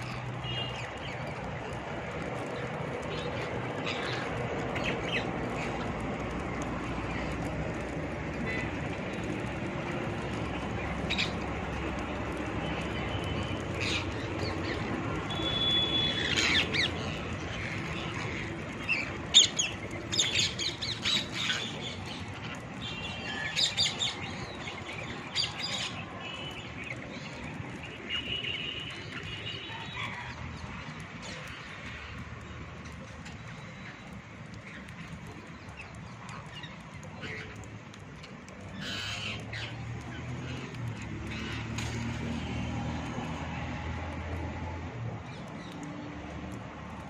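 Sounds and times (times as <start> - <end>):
parrots squawking and chirping: 16.0 - 22.6, 38.7 - 41.7.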